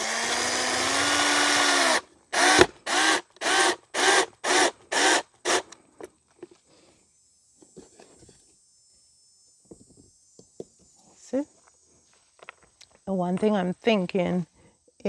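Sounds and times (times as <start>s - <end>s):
power drill driving screw: 0.0s - 5.8s.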